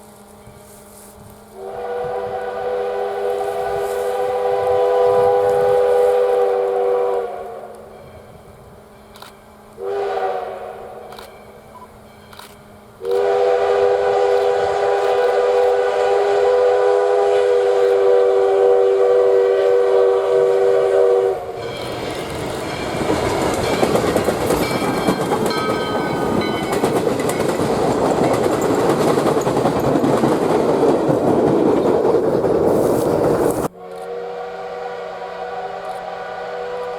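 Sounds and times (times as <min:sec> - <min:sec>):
train rumbling and clattering past: 0:00.0 - 0:33.7
steam locomotive whistle blast: 0:01.5 - 0:08.6, 0:09.7 - 0:12.0, 0:13.0 - 0:23.2, 0:33.7 - 0:36.9.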